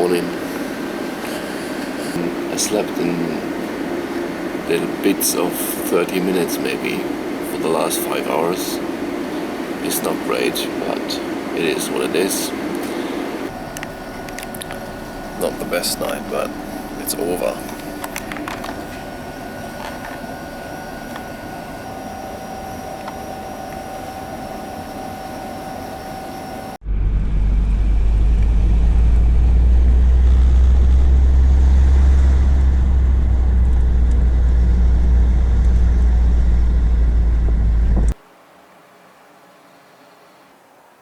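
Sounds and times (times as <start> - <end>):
deep ship engine rumble: 0.0 - 38.2
machinery hum with high tones: 0.0 - 40.8.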